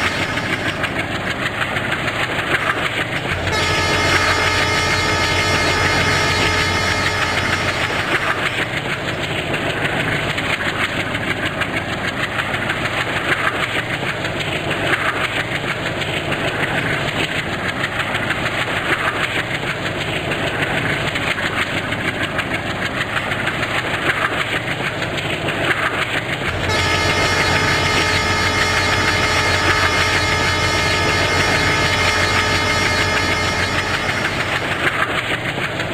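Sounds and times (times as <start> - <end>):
high steady tones: 0.0 - 1.1, 26.5 - 35.1
low hum: 0.0 - 1.5, 3.2 - 8.8, 26.4 - 35.3
train wheels clattering on rails: 0.0 - 35.9.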